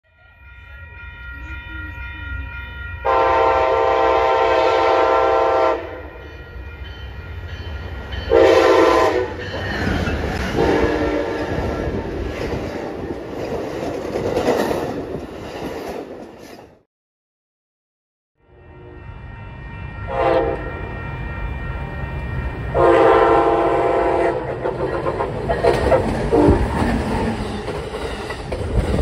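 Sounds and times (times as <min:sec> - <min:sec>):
train horn: 0:03.0 - 0:06.4, 0:08.3 - 0:09.6, 0:10.5 - 0:12.2, 0:18.4 - 0:21.4, 0:22.7 - 0:26.7
train wheels rumbling on rails: 0:06.3 - 0:16.8, 0:20.5 - 0:29.0.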